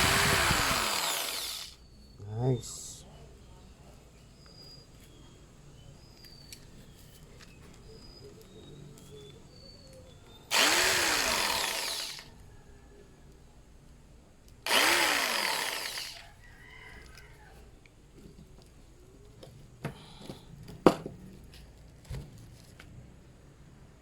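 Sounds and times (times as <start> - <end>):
electric jigsaw running: 0.0 - 1.8, 10.5 - 12.3, 14.7 - 16.2.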